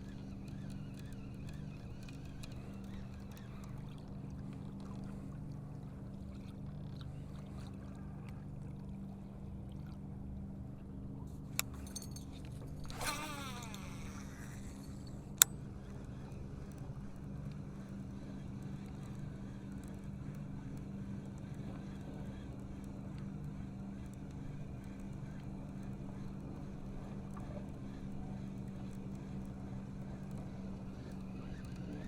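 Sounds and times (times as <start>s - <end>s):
boat motor humming: 0.0s - 32.0s
sharp clicks: 12.8s - 15.6s.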